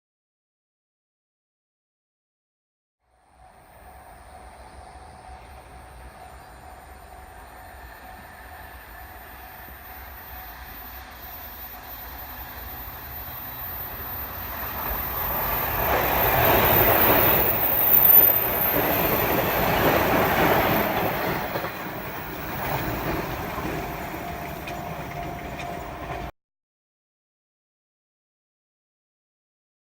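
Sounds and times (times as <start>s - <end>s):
electric train passing: 3.1s - 26.3s.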